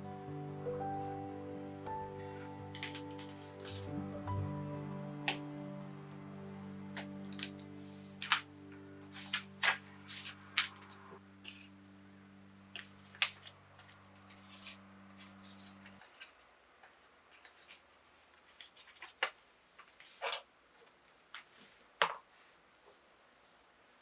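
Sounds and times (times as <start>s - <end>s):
low steady hum: 0.0s - 16.7s.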